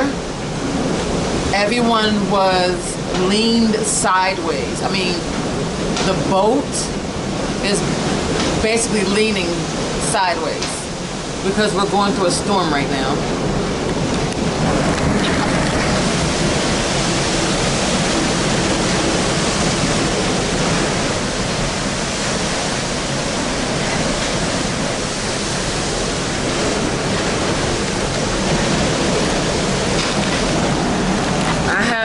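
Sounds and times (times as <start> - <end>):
sea rushing: 0.0 - 32.0
storm wind rushing: 0.0 - 32.0.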